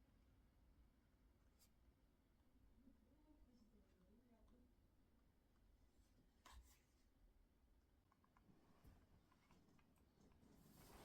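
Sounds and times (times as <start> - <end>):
faint small clicks: 8.0 - 8.5.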